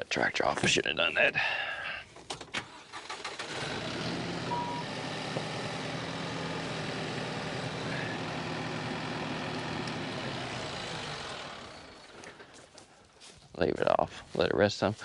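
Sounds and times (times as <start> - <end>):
engine shutting off: 2.3 - 12.9
diesel engine idling: 2.9 - 12.9.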